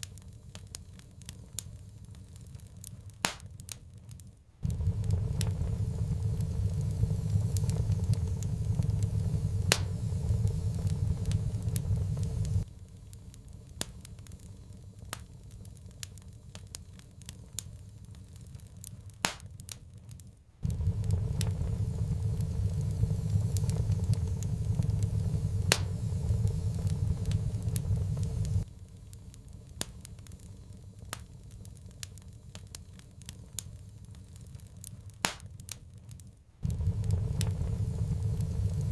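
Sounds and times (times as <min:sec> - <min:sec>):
wood fire crackling and popping: 0:00.0 - 0:38.9
loud low rumble: 0:04.6 - 0:12.7, 0:20.6 - 0:28.7, 0:36.6 - 0:38.9.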